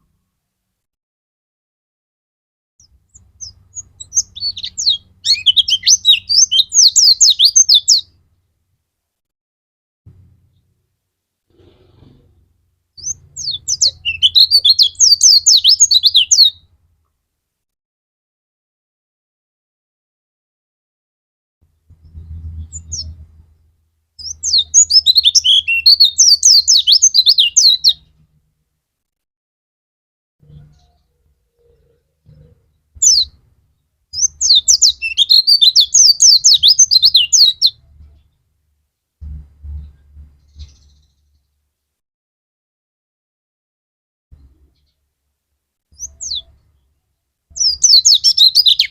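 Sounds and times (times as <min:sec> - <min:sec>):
bird singing high chirps: 0:02.8 - 0:08.2, 0:13.0 - 0:16.6, 0:22.0 - 0:23.2, 0:24.2 - 0:28.1, 0:30.4 - 0:33.4, 0:34.2 - 0:38.3, 0:39.8 - 0:41.5, 0:46.0 - 0:46.6, 0:47.5 - 0:48.9.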